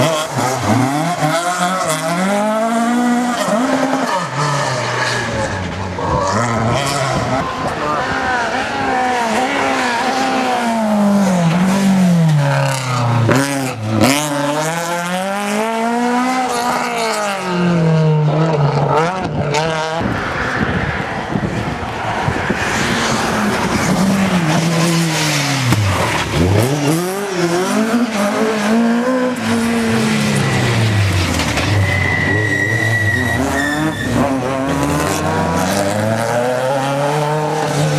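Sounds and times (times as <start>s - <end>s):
rally car engine revving: 0.0s - 37.9s.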